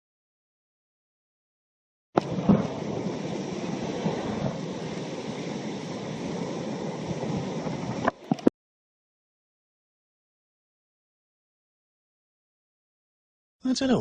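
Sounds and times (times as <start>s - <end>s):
seawater rushing over shore: 2.2s - 8.5s.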